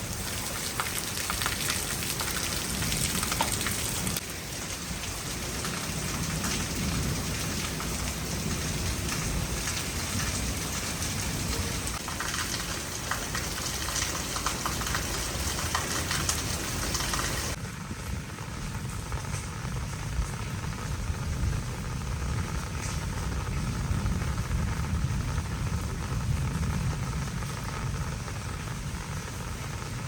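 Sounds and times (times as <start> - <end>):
heavy rain hissing: 0.0 - 30.0.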